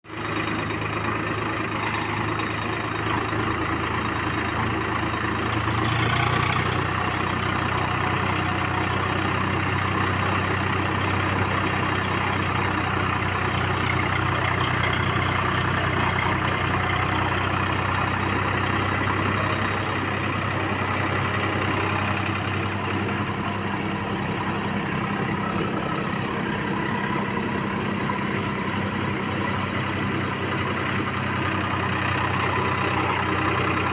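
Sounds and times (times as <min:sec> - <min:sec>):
tractor engine running: 0:00.0 - 0:33.9.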